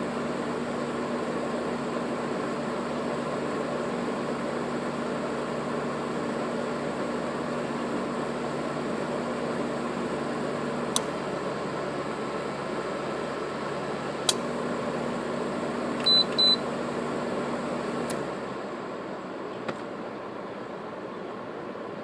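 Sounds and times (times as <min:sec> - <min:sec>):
air conditioner fan blowing: 0:00.0 - 0:22.0
compressor humming: 0:00.0 - 0:22.0.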